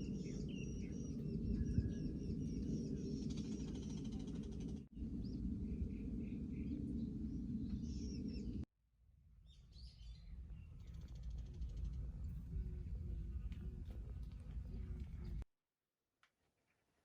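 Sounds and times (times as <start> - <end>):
small birds chirping: 0.0 - 8.6
steady low rumble: 0.0 - 8.7, 10.4 - 15.5.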